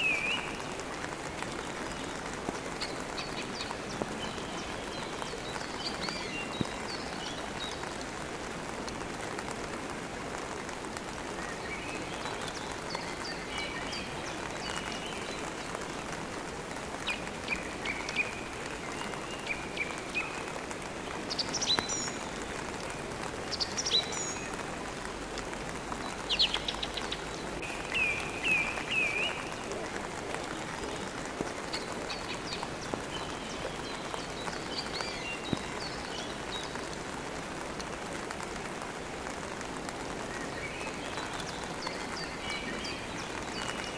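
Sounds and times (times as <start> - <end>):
small birds chirping: 0.0 - 8.3, 11.2 - 25.0, 25.6 - 37.2
steady rain: 0.0 - 43.9.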